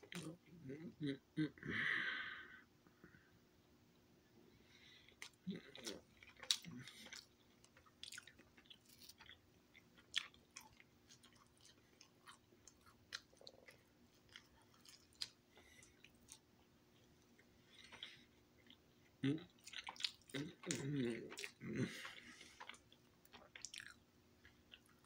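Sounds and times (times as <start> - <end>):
person chewing pizza: 5.1 - 25.0.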